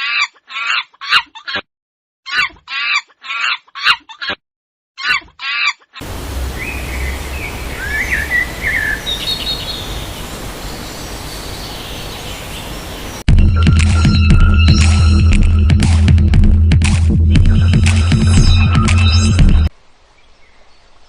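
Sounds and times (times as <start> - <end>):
bird chirps: 6.3 - 13.3.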